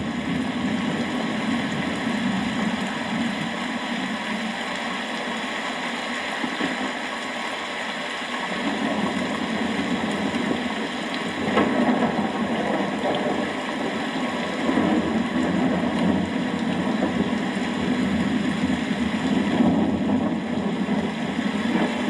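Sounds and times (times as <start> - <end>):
low rolling thunder: 0.0 - 3.9, 8.6 - 22.0
heavy rain: 0.0 - 22.0.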